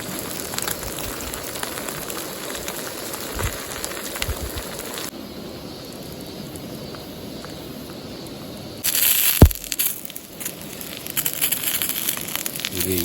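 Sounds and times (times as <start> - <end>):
food sizzling in a frying pan: 0.0 - 5.1.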